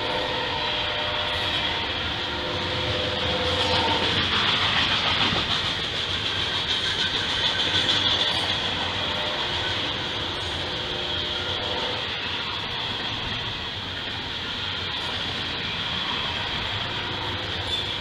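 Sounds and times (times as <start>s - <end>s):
freight train rolling on rails: 0.0s - 18.0s.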